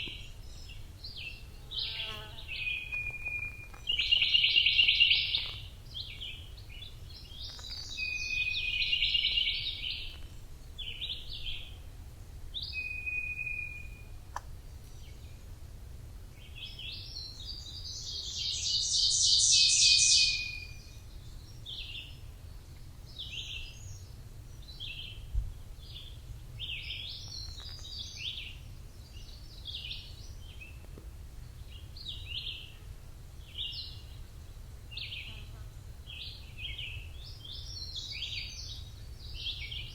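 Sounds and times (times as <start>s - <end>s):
songbirds chirping and singing: 0.0s - 11.8s.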